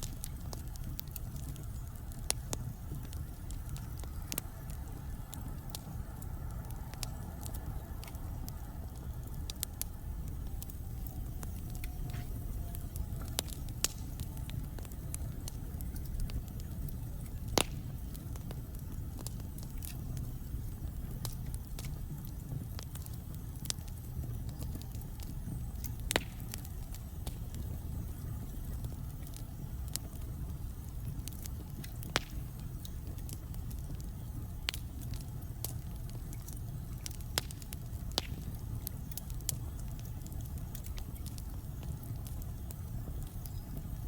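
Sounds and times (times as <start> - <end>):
burning logs crackling and popping: 0.0 - 44.0
fire rumbling: 0.0 - 44.0.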